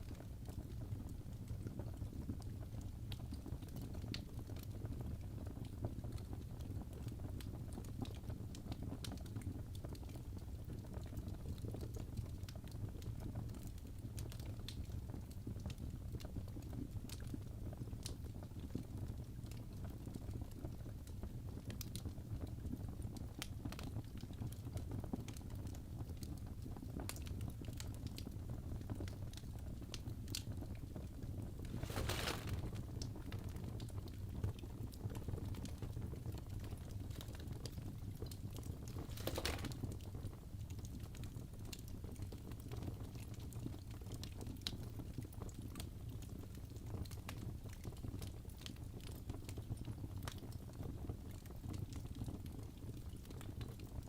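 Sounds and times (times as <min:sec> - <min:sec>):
low rumble of fire: 0:00.0 - 0:54.0
fire crackling and popping: 0:14.0 - 0:50.7.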